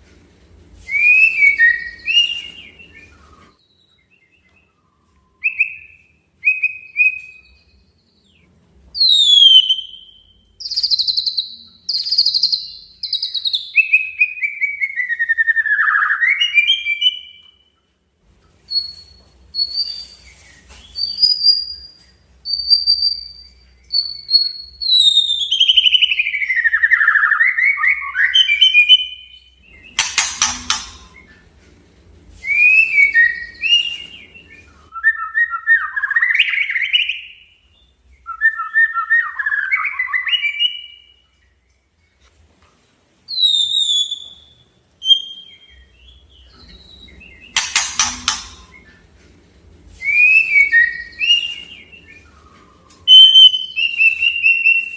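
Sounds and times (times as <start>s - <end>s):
songbird whistling: 0.8s - 7.8s, 9.0s - 17.7s, 18.7s - 31.4s, 32.4s - 41.2s, 43.3s - 49.0s, 50.0s - 54.9s.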